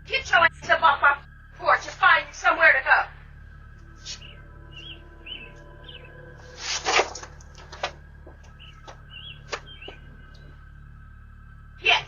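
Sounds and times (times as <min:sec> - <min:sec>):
steady low hum: 0:00.0 - 0:12.0
small birds chirping: 0:03.2 - 0:12.0.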